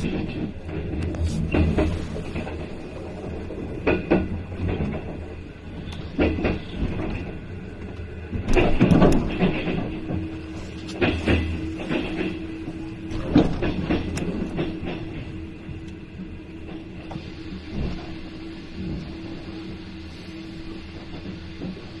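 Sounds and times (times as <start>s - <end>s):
wheels clacking over track joints: 0.0s - 17.2s
train rumble from inside coach: 0.0s - 22.0s.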